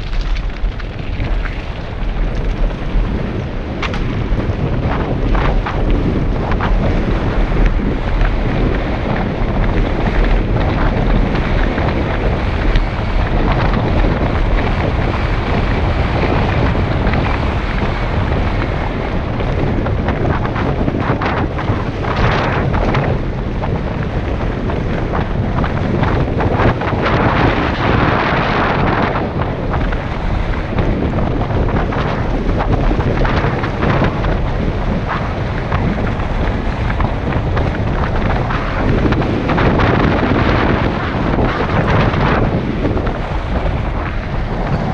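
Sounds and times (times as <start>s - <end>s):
bike frame rattling and knocking: 0.0s - 27.4s
wind buffeting microphone: 0.0s - 44.9s.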